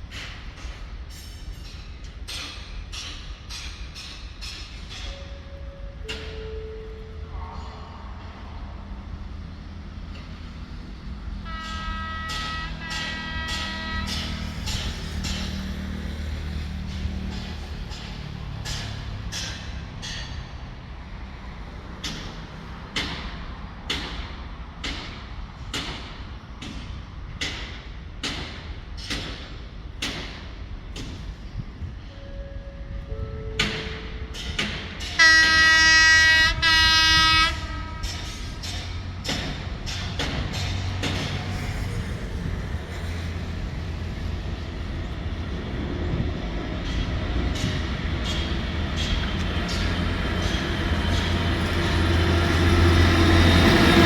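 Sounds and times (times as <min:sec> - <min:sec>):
low train rumble: 0:00.0 - 0:54.0
train wheels knocking over rail joints: 0:10.0 - 0:20.8, 0:21.6 - 0:31.9, 0:33.6 - 0:54.0
train horn: 0:11.4 - 0:15.0, 0:32.1 - 0:34.4, 0:35.1 - 0:38.6.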